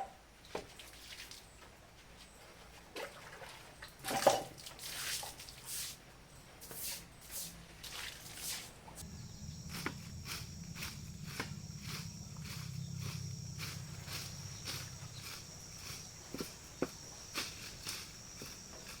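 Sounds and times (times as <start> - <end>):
steady low hum: 8.9 - 19.0
sharp ticks: 9.0 - 19.0
rustling swishes of grass: 9.4 - 18.9.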